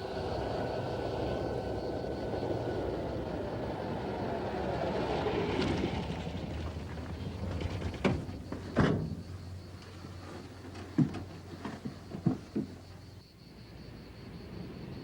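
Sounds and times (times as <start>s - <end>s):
sharp knocks and thumps: 7.4s - 13.1s.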